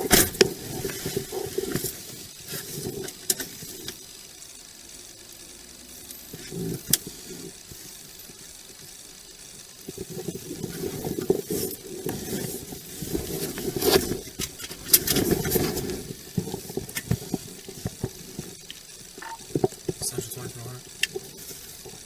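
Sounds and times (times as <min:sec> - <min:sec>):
clothing rubbing on microphone: 0:09.9 - 0:18.5.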